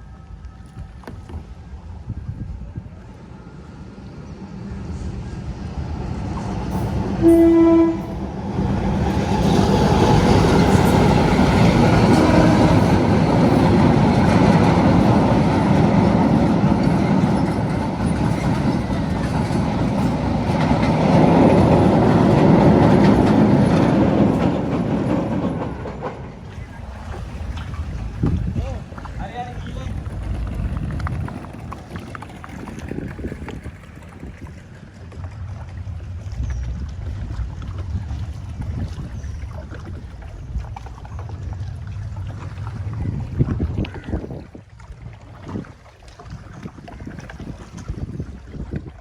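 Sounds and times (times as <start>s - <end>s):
train rumbling past: 0.0s - 44.7s
train horn blast: 7.0s - 8.4s, 11.7s - 13.3s.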